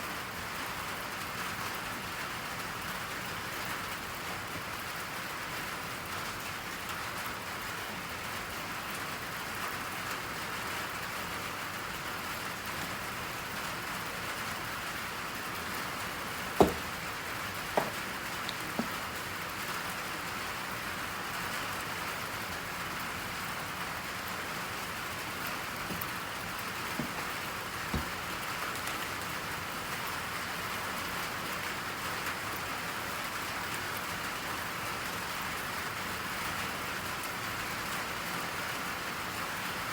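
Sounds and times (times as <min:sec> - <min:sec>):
steady rain: 0:00.0 - 0:39.9
short knocks: 0:16.6 - 0:17.1, 0:17.7 - 0:19.0, 0:27.0 - 0:28.3.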